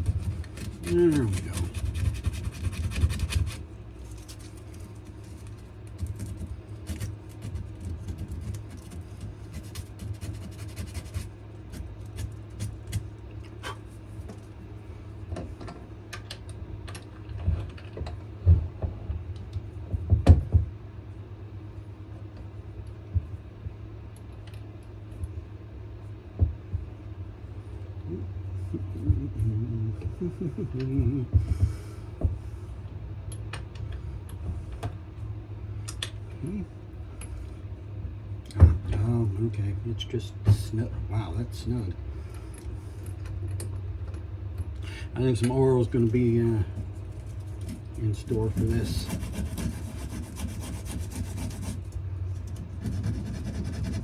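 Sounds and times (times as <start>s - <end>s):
sandpaper scratching wood: 0.0s - 3.6s, 6.1s - 11.3s, 46.4s - 51.9s, 52.6s - 54.0s
low hum: 21.0s - 54.0s.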